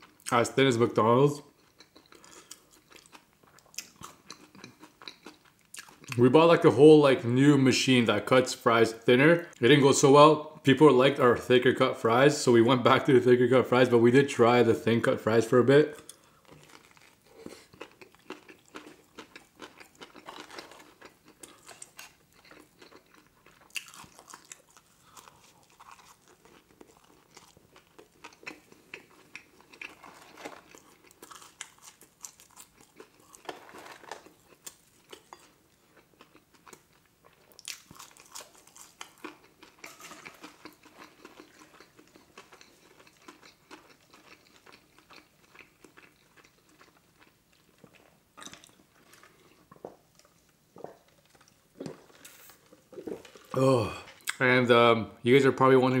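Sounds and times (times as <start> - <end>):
person chewing with mouth open: 1.4 - 6.2, 16.0 - 54.4.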